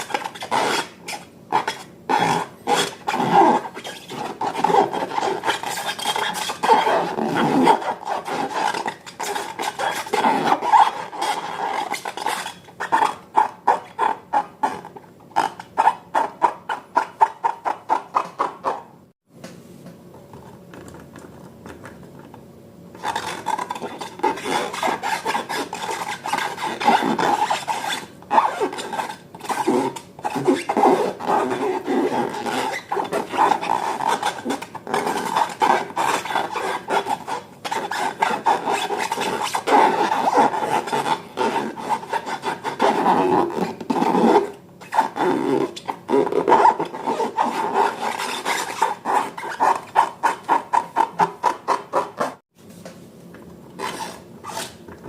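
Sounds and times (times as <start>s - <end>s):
slime rubbing and scraping: 0.0s - 18.9s, 23.0s - 52.4s
slime stirring strokes: 23.0s - 53.0s.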